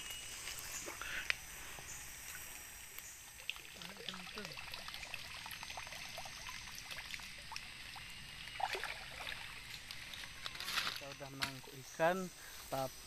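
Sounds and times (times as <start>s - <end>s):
stream water trickling: 0.0s - 13.0s.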